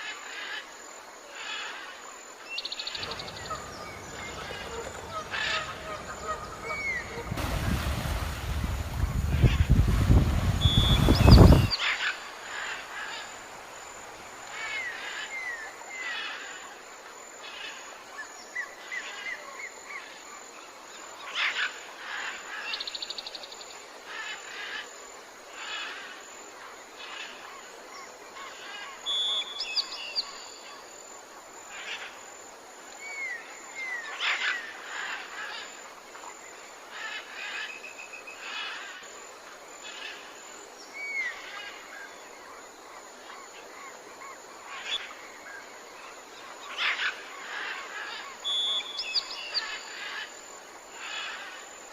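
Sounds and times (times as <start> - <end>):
birds chirping and trilling: 2.6 - 11.9
loud rush of noise: 3.0 - 11.7.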